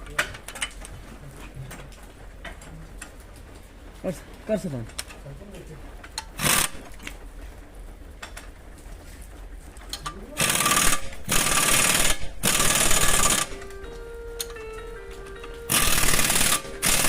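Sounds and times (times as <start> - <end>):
pneumatic impact wrench: 6.4 - 7.1, 10.4 - 13.6, 15.7 - 17.0
steady tones: 10.1 - 17.0.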